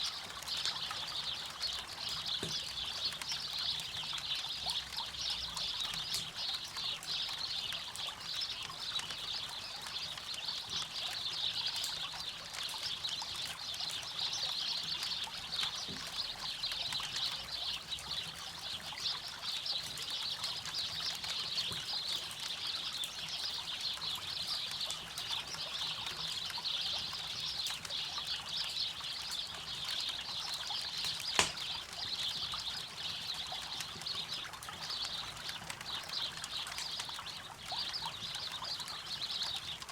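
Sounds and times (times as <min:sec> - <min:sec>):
campfire crackling: 0:28.6 - 0:38.6
sharp pop from fire: 0:31.1 - 0:31.7.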